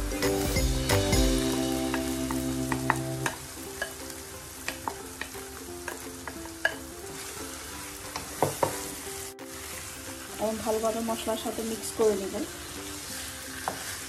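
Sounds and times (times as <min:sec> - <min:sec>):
chicken sizzling in a frying pan: 0:00.0 - 0:14.0
wooden spatula scraping and stirring: 0:04.8 - 0:14.0.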